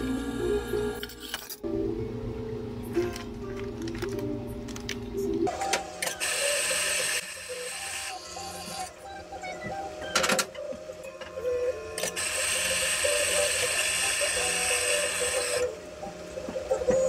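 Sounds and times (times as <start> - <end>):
espresso machine hissing water: 0.0 - 1.2, 6.0 - 8.9, 12.0 - 15.7.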